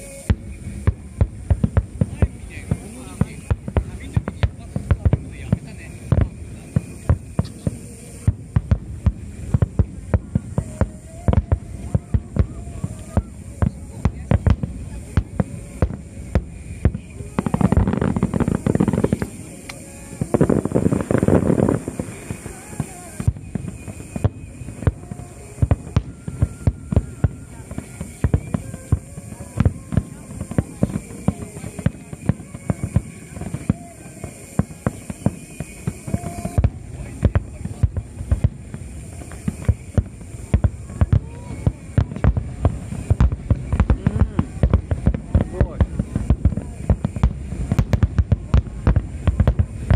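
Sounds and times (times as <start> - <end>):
faint music: 0.0 - 49.9
firework booms: 0.0 - 49.9
fireworks crackling: 0.0 - 49.9.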